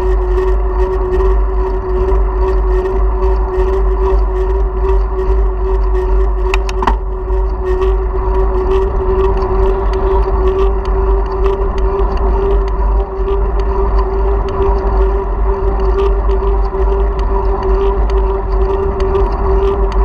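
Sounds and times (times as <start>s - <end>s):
steady hum: 0.0s - 20.0s
wind rumble: 0.0s - 20.0s
road noise: 4.4s - 20.0s
small rattling clicks: 6.5s - 7.1s.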